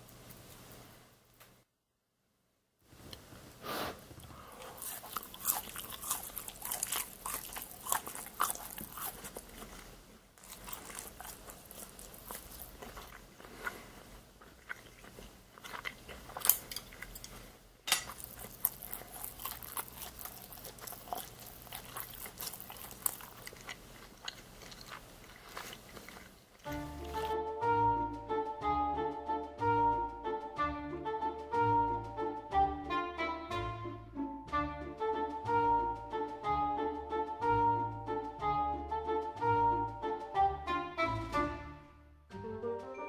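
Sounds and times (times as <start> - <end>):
person chewing crispy food: 4.2 - 27.4.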